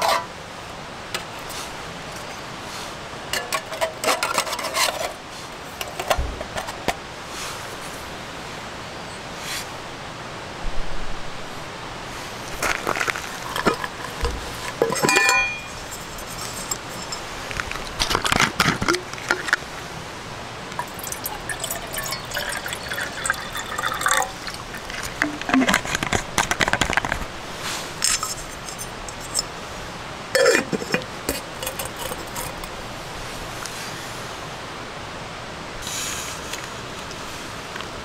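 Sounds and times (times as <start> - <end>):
clinks and knocks: 13.4 - 19.6
liquid being poured: 20.8 - 26.2, 30.4 - 32.8.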